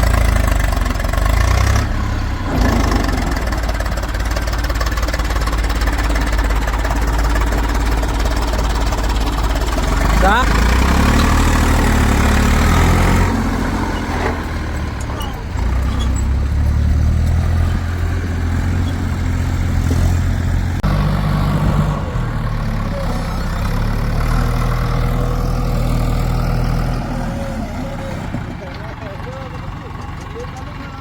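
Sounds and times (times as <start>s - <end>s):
heavy diesel engine running: 0.0s - 31.0s.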